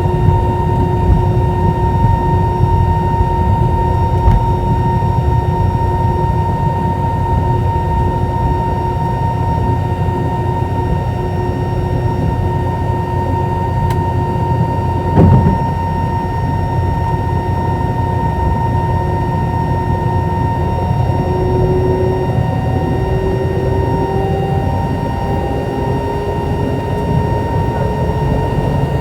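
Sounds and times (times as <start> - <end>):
aircraft cabin rumble: 0.0 - 18.0
jet engines whining: 0.0 - 29.0
short thump: 15.2 - 16.0.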